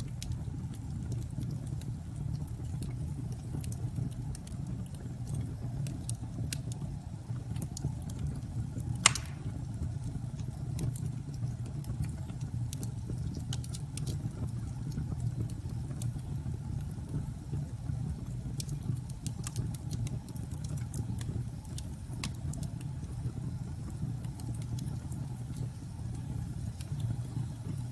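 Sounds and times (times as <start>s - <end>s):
wood fire crackling: 0.0s - 27.9s
sharp pops: 9.0s - 9.6s.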